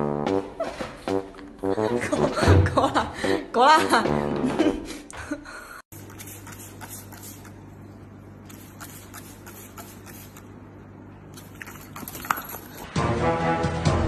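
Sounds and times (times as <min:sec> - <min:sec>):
short sprays: 0:06.0 - 0:07.6, 0:08.5 - 0:10.5.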